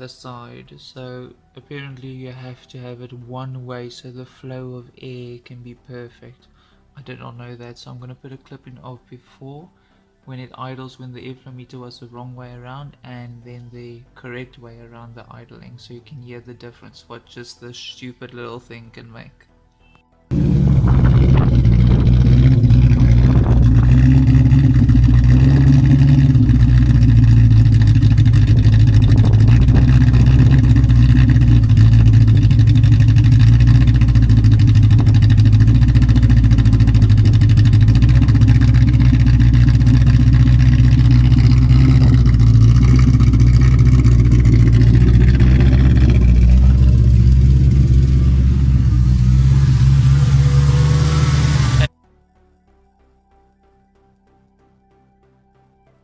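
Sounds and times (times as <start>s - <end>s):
loud engine idling roughly: 20.3s - 51.9s.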